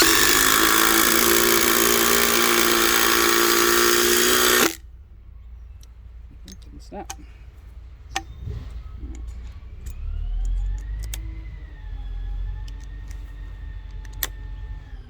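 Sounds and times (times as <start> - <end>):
impact driver hammering a screw: 0.0 - 4.8
sharp clicks: 0.0 - 4.8, 9.2 - 11.4, 13.8 - 14.5.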